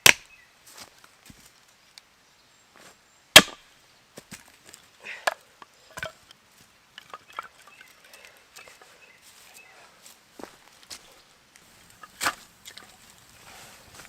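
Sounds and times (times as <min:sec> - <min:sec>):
axe chopping wood: 0:00.0 - 0:00.2, 0:03.4 - 0:03.6.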